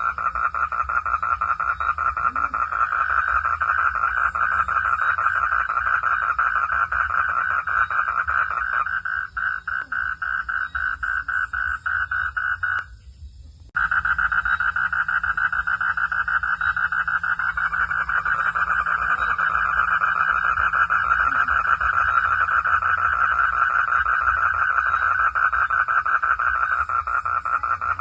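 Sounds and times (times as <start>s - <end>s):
frogs trilling: 0.0s - 28.0s.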